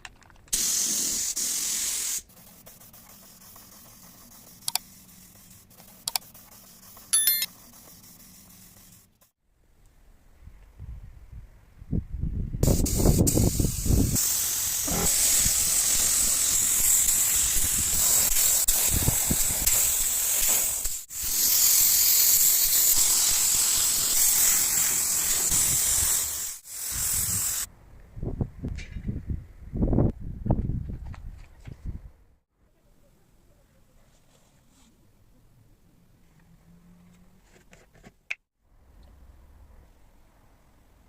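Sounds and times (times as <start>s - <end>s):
compressed air hissing: 0.5s - 5.6s, 12.6s - 27.7s.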